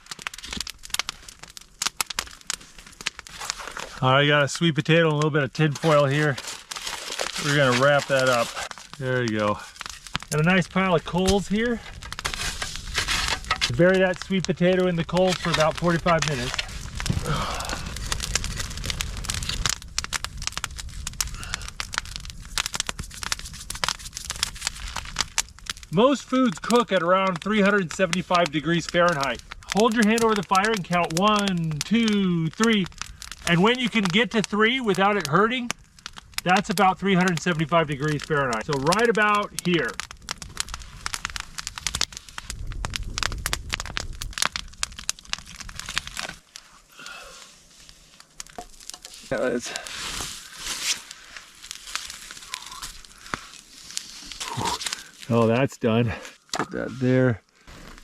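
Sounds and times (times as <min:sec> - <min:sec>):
campfire crackling: 0:00.0 - 0:58.0
low rumble: 0:15.4 - 0:23.3, 0:40.0 - 0:46.2.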